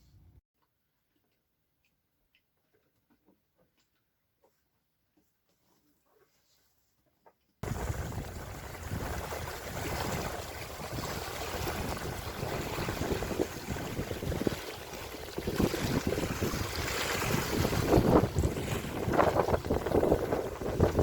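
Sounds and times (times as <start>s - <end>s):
water rushing: 7.6s - 21.0s
wind buffeting microphone: 7.6s - 21.0s.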